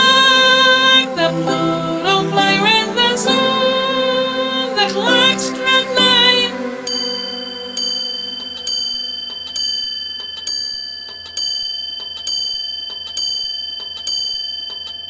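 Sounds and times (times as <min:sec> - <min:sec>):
clock chime striking: 0:00.0 - 0:10.1.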